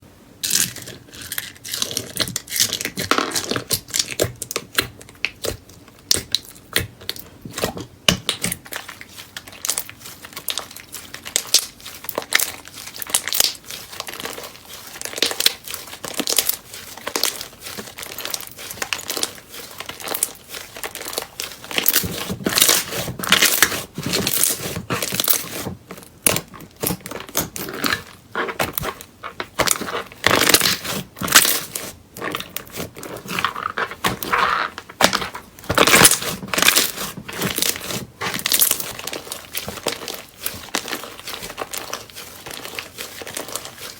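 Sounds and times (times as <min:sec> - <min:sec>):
slime crackling and popping: 0:00.4 - 0:43.9.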